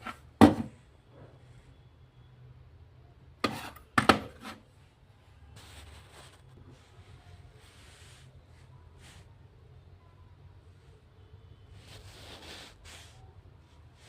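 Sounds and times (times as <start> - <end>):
hard object knocking: 0.0 - 0.8, 3.4 - 4.4.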